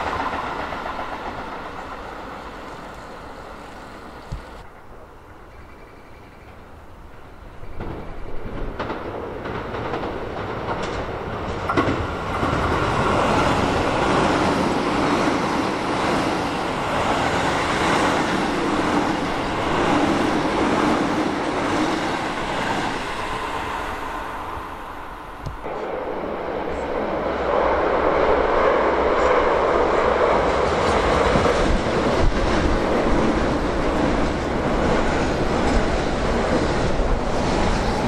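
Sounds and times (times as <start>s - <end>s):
sharp clicks of train wheels: 0.0s - 24.1s
electric train running past: 0.0s - 38.0s.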